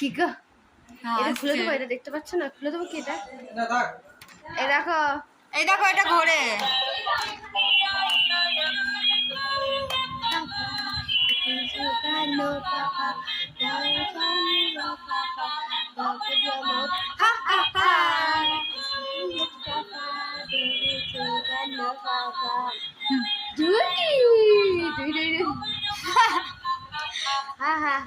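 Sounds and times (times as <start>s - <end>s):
synthesized singing voice: 5.9s - 28.0s
baby toy playing a tune: 6.0s - 27.6s.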